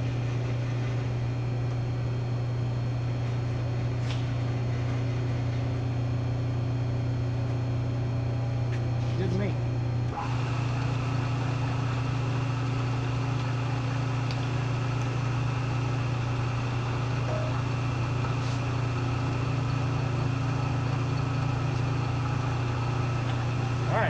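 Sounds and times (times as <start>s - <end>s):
milling machine motor humming: 9.5s - 24.0s.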